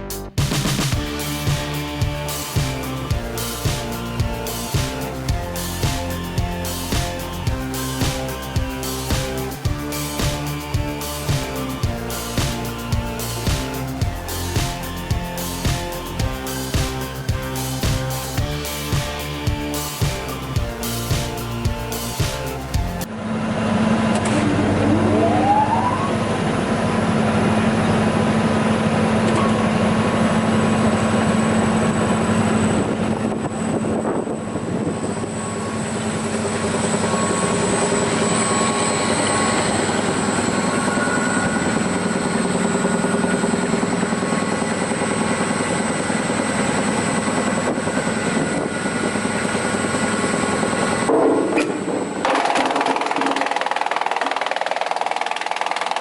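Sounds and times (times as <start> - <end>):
wood chipper running: 0.4 - 25.1, 35.1 - 56.0
short rising tone: 24.2 - 26.8.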